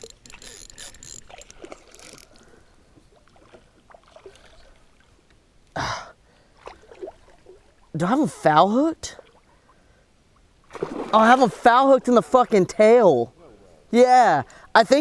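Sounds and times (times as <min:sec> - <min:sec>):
water splashing around kayak: 0:00.0 - 0:05.3, 0:06.5 - 0:08.0, 0:10.6 - 0:12.4
loud splash: 0:10.7 - 0:11.6.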